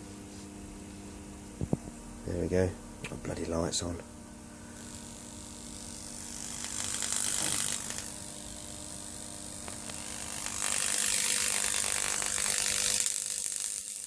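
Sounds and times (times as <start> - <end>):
steady electrical hum: 0.0 - 14.0
electric arc crackling and hissing: 4.7 - 14.0.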